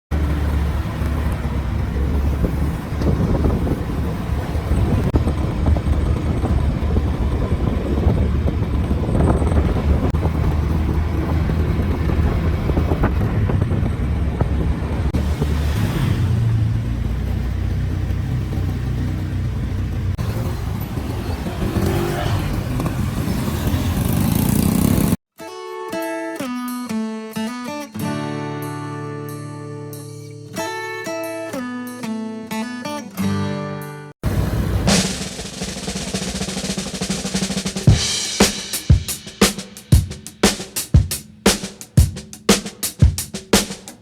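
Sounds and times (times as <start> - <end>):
motorcycle engine low rumble: 0.1 - 25.2
street traffic engines: 0.1 - 25.2, 34.2 - 44.0.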